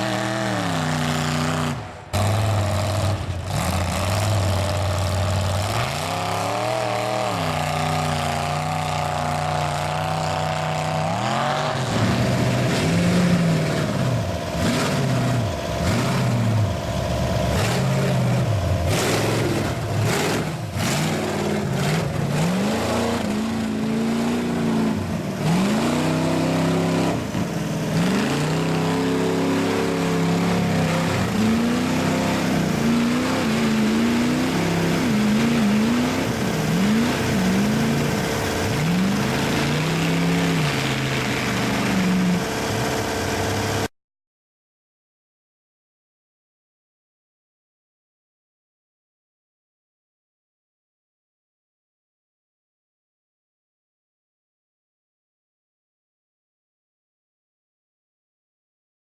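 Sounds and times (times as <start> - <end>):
truck engine revving: 0.0 - 43.9.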